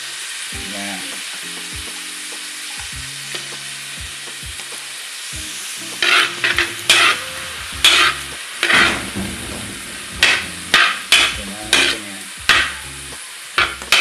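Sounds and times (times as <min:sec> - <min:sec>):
vegetables sizzling in hot oil: 0:00.0 - 0:14.0
spatula scraping pan: 0:06.0 - 0:12.8.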